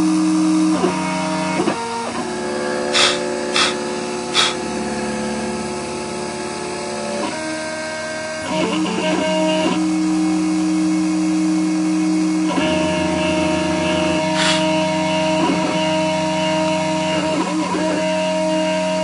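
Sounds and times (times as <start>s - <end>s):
stepper motors whining: 0.8s - 7.6s, 12.5s - 18.8s.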